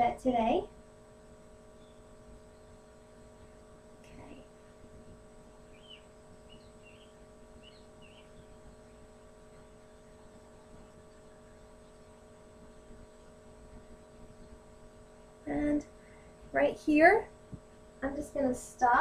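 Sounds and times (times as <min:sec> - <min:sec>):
electrical hum with constant tones: 0:00.0 - 0:19.0
low room noise: 0:00.0 - 0:19.0
faint high chirps: 0:01.7 - 0:03.5, 0:05.6 - 0:15.3.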